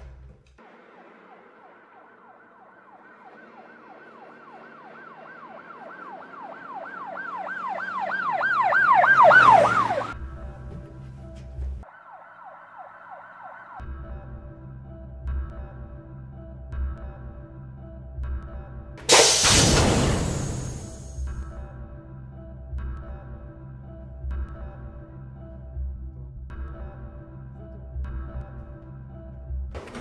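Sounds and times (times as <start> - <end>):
siren yelp sound effect: 1.7 - 10.2
low droning music: 10.0 - 11.8, 13.8 - 29.7
burst of noise: 19.1 - 21.3.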